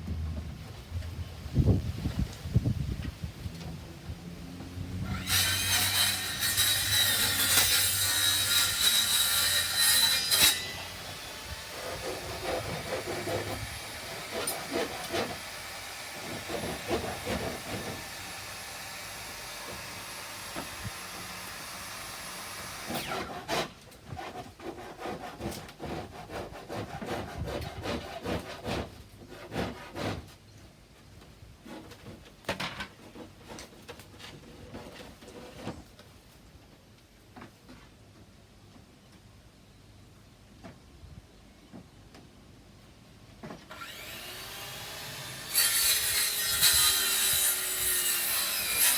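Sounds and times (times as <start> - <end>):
saw cutting wooden board: 4.5 - 30.2, 43.7 - 48.9.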